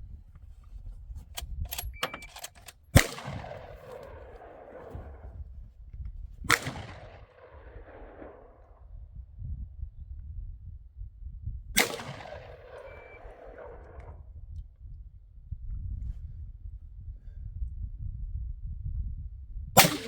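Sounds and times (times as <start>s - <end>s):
gunshots with echo: 3.0s - 5.4s, 6.5s - 8.5s, 11.8s - 14.1s, 19.8s - 20.0s
low rumble: 3.0s - 17.0s.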